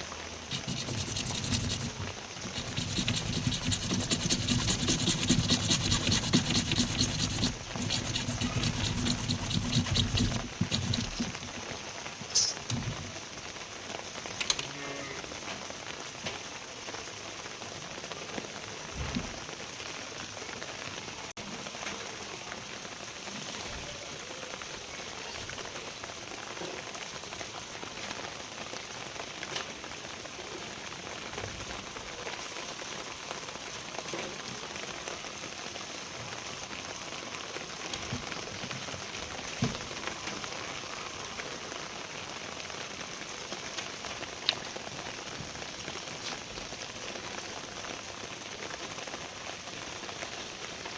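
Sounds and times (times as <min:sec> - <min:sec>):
steady rain falling: 0:15.4 - 0:50.9.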